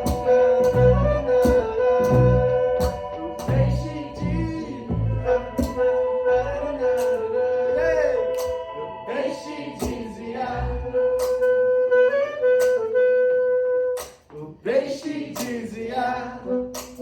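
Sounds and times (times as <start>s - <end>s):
sharp rhythmic hits: 0.0s - 6.2s, 8.2s - 10.5s
live band music: 0.0s - 14.3s, 16.4s - 17.0s.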